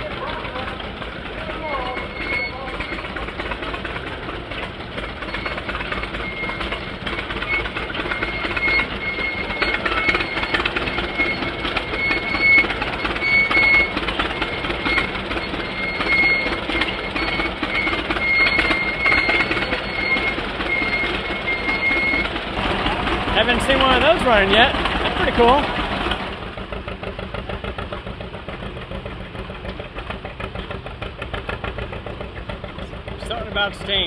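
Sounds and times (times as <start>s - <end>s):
farm machine clattering: 0.0s - 26.6s
short high squeak: 1.8s - 3.2s.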